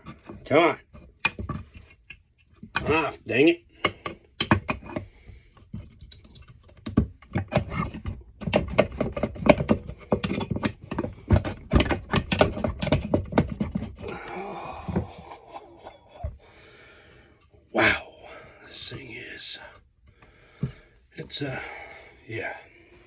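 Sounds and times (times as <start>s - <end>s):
metal clicks and knocks: 3.8s - 14.0s
heavy breath: 14.0s - 23.0s.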